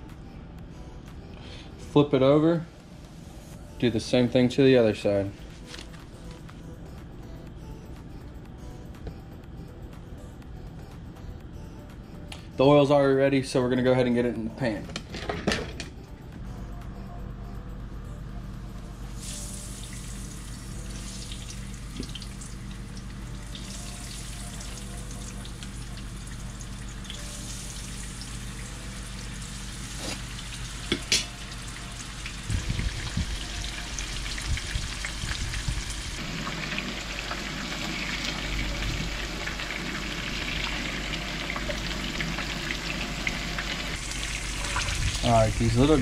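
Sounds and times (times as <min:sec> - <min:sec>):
fish sizzling in hot oil: 0:19.2 - 0:46.0.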